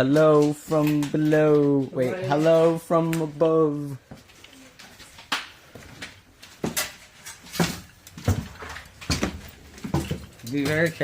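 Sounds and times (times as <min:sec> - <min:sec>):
footsteps crunching on broken glass: 0:04.0 - 0:11.0.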